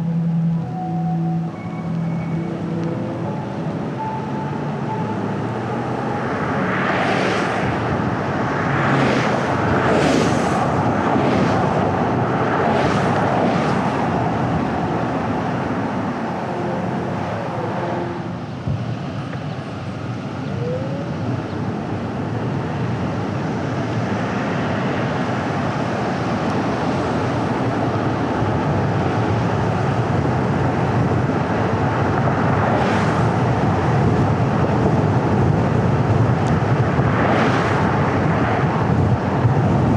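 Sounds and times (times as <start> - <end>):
car tyres and engine rumble: 0.0 - 39.9.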